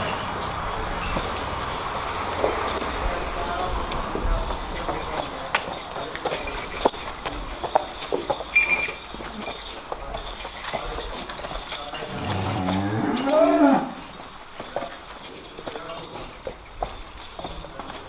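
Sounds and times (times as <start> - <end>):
cow mooing: 12.1 - 14.1.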